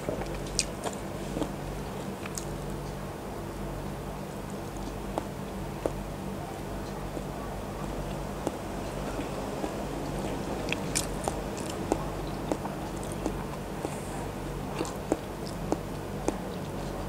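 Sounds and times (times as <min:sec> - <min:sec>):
close chewing with wet mouth sounds: 0:00.0 - 0:03.0, 0:04.1 - 0:17.0
steady low hum: 0:00.0 - 0:17.0.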